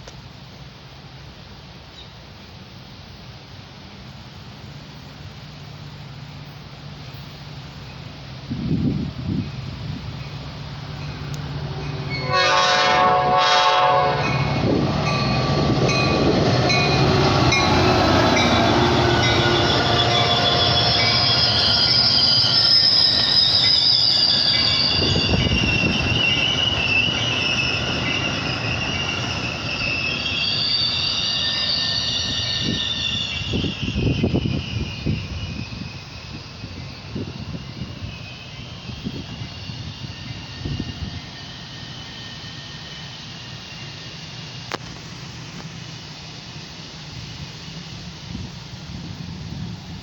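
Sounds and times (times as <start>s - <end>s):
train passing: 0.0s - 50.0s
train wheels squealing: 4.6s - 50.0s
train horn blasts: 11.7s - 14.7s.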